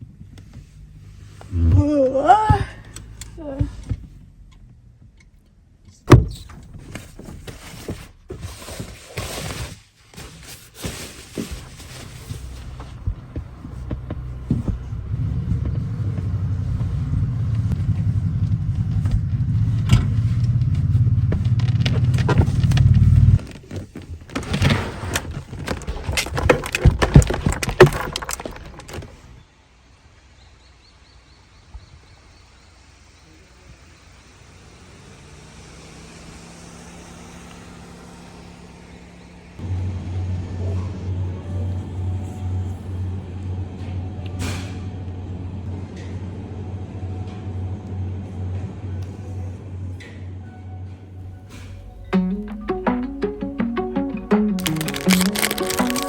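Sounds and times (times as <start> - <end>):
vehicle engine rumbling: 0.0 - 30.0, 32.2 - 56.0
knocks and clatter: 17.7 - 29.3.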